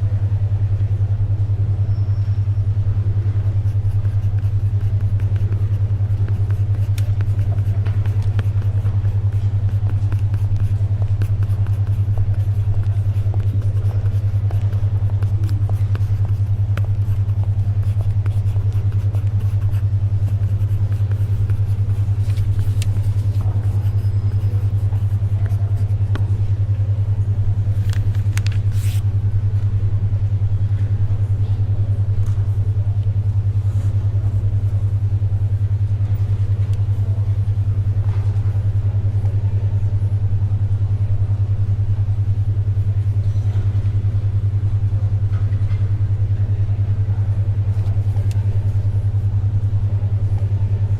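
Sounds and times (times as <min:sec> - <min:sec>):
low pulsing hum tone: 0:00.0 - 0:50.9
pencil scratching: 0:03.4 - 0:26.1, 0:28.4 - 0:29.0
paper rustling: 0:04.4 - 0:25.6, 0:27.8 - 0:29.0.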